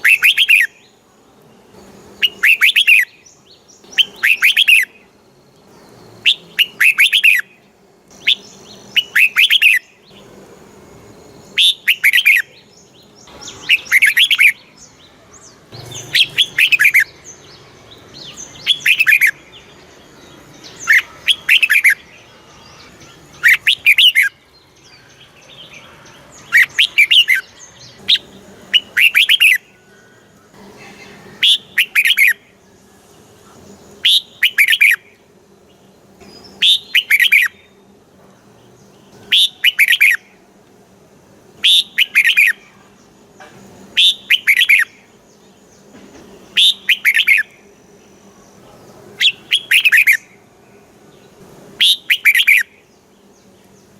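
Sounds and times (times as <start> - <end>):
bulbul singing: 0.0 - 53.9.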